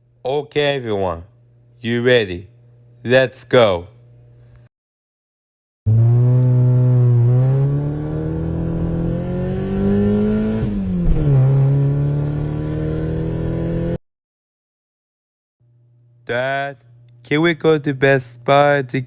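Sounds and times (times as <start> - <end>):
car engine accelerating: 5.9 - 14.0.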